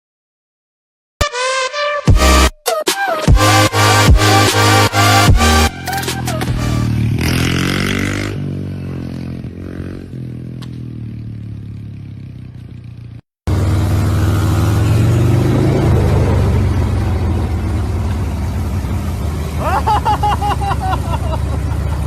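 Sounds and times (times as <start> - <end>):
motorcycle engine running: 5.0 - 22.0.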